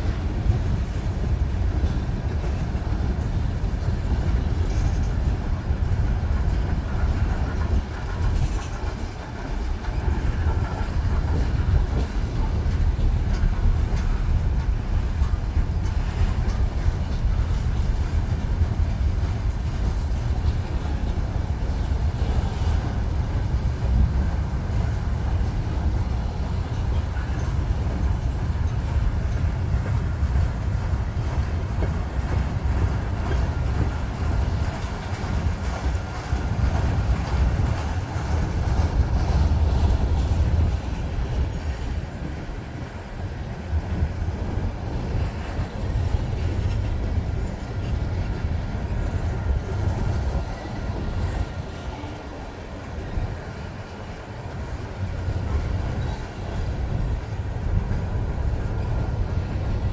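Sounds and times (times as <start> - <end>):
freight train cars rumbling past: 0.0 - 59.9.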